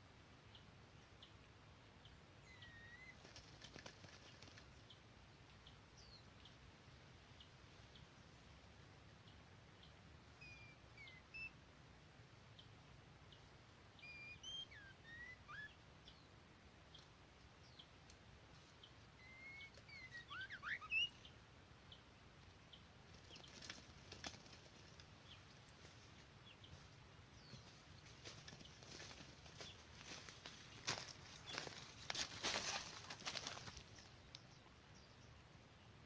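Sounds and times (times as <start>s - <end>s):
bird chirps and whistles: 2.5s - 3.1s, 10.4s - 11.5s, 14.0s - 15.8s, 19.2s - 21.2s.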